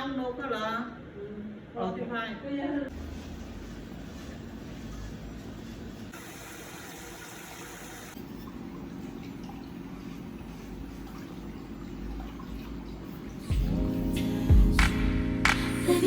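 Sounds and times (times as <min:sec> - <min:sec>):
water running into a basin: 0:06.1 - 0:13.5.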